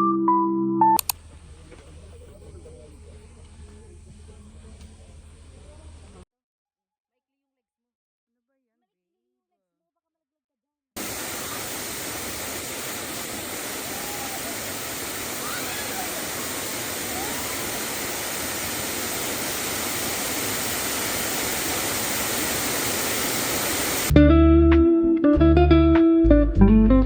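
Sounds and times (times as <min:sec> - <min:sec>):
waterfall roaring: 0:11.0 - 0:24.1.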